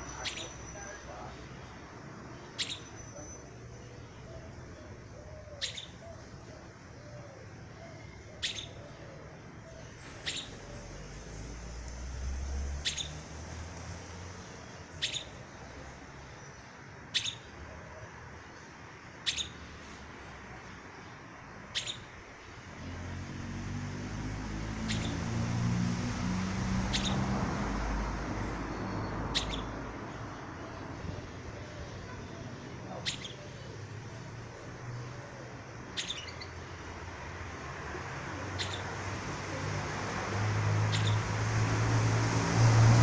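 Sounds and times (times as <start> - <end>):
bird high chirp: 0.0 - 13.4, 14.6 - 17.7, 18.5 - 22.2, 24.8 - 25.4, 26.7 - 35.2, 35.8 - 36.8, 38.5 - 39.0, 40.8 - 41.3.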